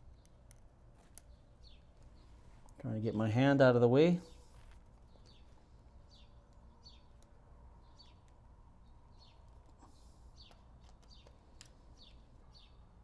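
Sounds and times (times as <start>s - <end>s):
bird chirping faintly: 0.0s - 13.0s.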